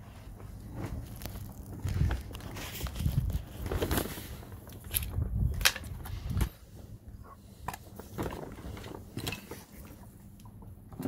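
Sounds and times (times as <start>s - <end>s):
low rumbling bumps: 0.3s - 7.3s.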